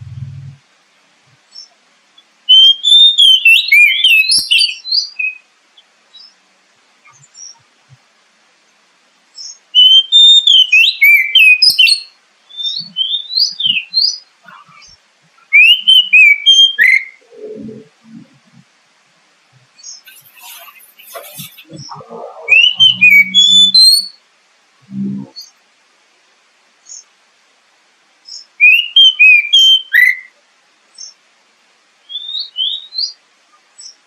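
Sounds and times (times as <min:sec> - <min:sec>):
bird whistled song: 0:02.5 - 0:05.4, 0:09.4 - 0:14.9, 0:15.5 - 0:17.7, 0:19.8 - 0:24.2, 0:28.3 - 0:30.3, 0:32.0 - 0:33.2.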